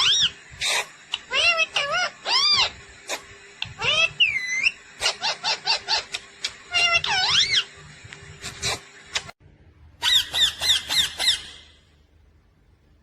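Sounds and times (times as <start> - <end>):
parrot warbling call: 0.0 - 2.8, 3.8 - 7.7, 10.0 - 11.8
parrot squawking: 0.0 - 7.8, 10.0 - 11.9.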